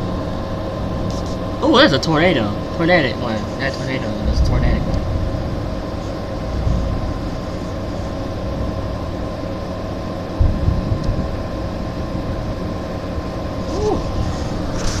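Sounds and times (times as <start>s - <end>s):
faint steady hum: 0.0s - 15.0s
wind rumbling on microphone: 3.9s - 15.0s.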